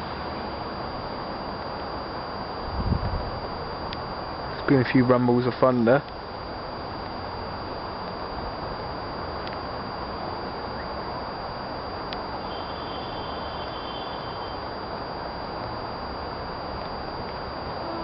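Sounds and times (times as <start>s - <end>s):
outdoor background noise: 0.0s - 18.0s
faint high thin tone: 12.4s - 14.9s.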